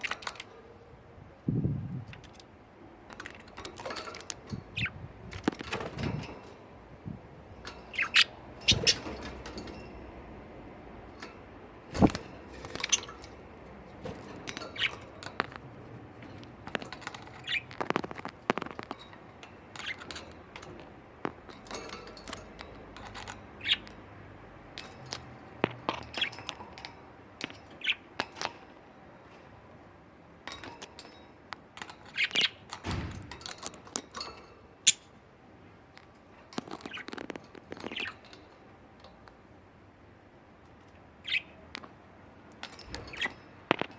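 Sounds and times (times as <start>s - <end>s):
budgerigars chirping: 4.7s - 5.0s, 7.9s - 9.2s, 14.6s - 15.2s, 16.7s - 18.8s, 23.5s - 24.0s, 41.2s - 41.6s.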